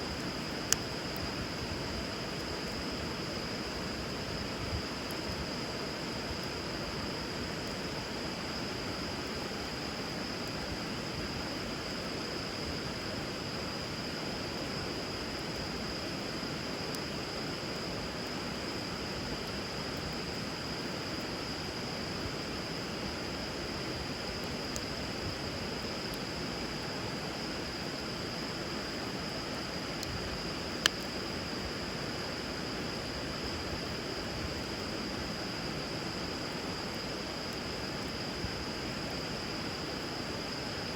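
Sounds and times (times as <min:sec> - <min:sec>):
wood fire crackling: 0:00.1 - 0:05.3, 0:18.0 - 0:31.8.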